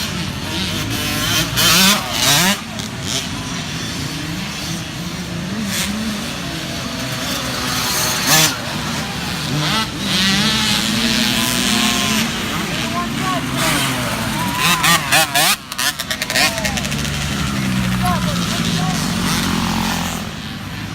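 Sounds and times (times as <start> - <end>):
dirt bike engines revving: 0.0 - 20.9.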